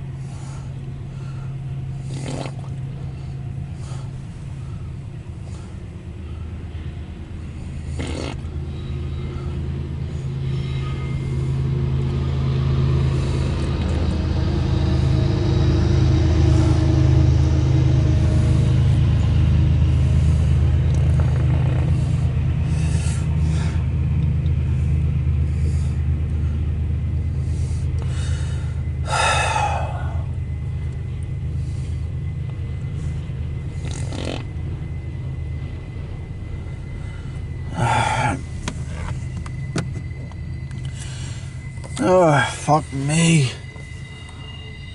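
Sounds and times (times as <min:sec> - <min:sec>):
freight train rumbling past: 0:00.0 - 0:44.9.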